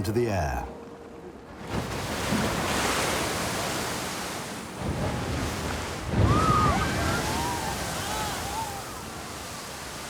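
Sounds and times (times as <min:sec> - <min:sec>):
geyser erupting: 0:04.9 - 0:10.0.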